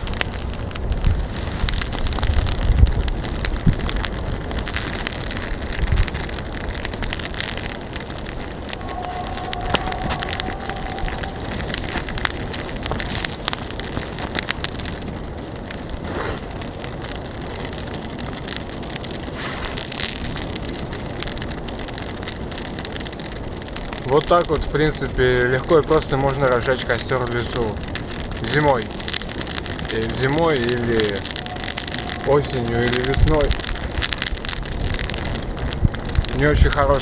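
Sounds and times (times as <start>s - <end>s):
campfire crackling: 0.0s - 37.0s.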